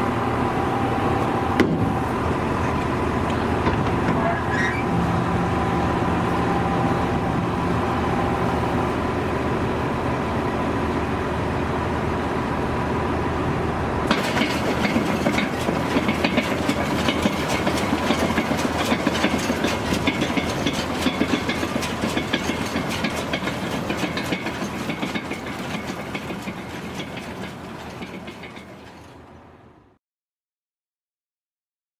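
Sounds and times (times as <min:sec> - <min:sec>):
tractor engine running: 0:00.0 - 0:29.7
baler mechanical clatter: 0:14.1 - 0:29.4.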